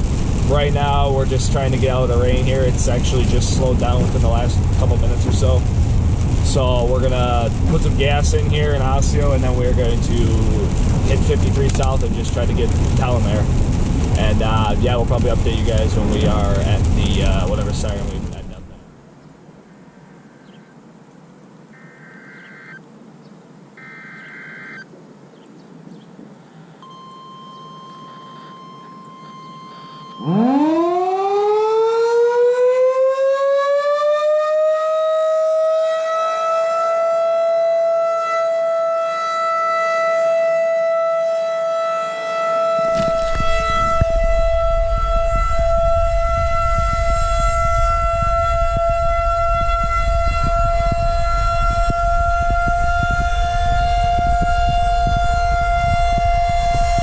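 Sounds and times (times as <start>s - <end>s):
low rumble: 0.0s - 18.9s, 42.9s - 57.0s
warning siren winding up: 23.8s - 24.9s, 26.8s - 57.0s.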